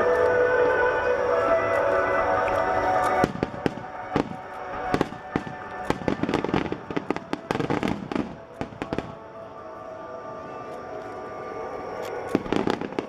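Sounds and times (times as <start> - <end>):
music: 0.0 - 13.0
fireworks bangs and crackles: 3.0 - 9.3, 12.3 - 13.0.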